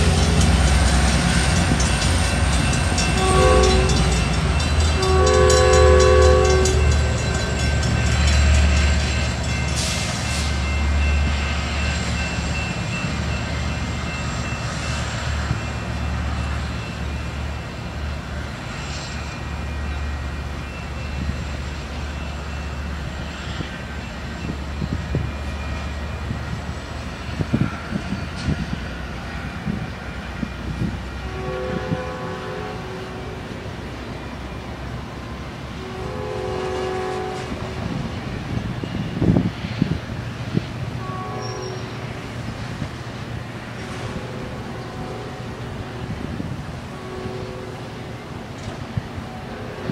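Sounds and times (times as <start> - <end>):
low rumble of train: 0.0 - 49.9
train horn blasts: 3.0 - 8.9, 31.2 - 33.6, 35.7 - 38.0, 41.0 - 42.3, 43.8 - 48.2, 49.2 - 49.9.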